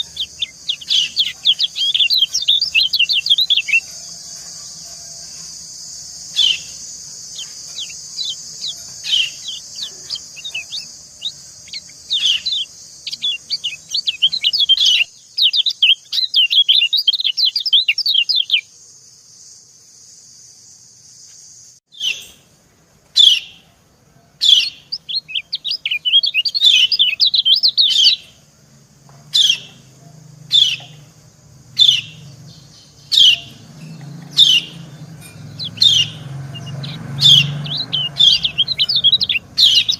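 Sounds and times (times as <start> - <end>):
sharp falling bird chirps: 0.0 - 18.7, 31.8 - 39.9
birds twittering rapidly: 0.0 - 20.1, 21.6 - 39.9.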